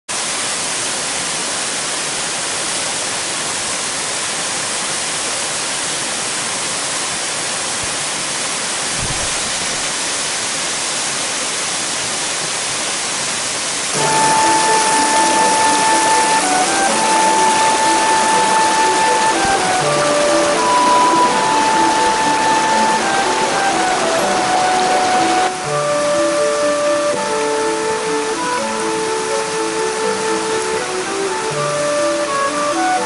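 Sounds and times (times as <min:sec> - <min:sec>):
mountain stream rushing: 0:00.1 - 0:33.0
music with held tone: 0:14.0 - 0:33.0.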